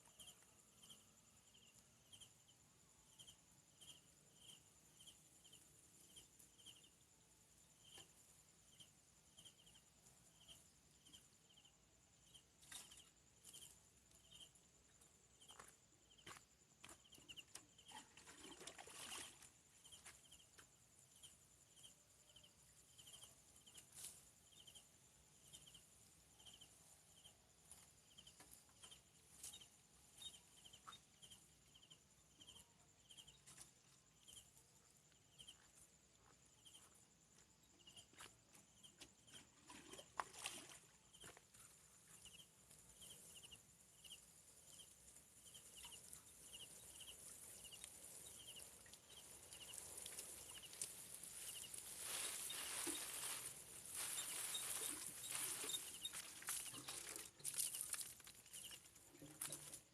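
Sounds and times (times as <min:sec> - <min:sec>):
insect chirping: 0:00.0 - 0:59.9
high insect whine: 0:42.2 - 0:58.8.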